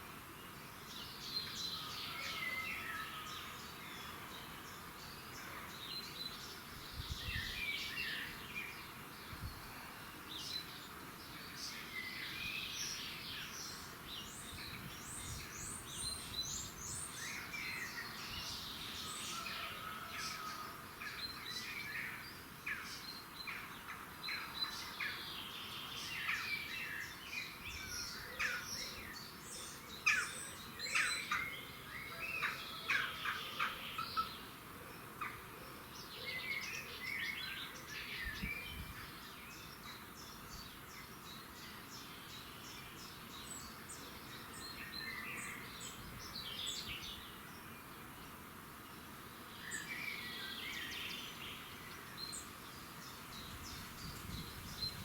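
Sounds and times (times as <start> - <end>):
birds chirping and trilling: 11.4 - 55.0.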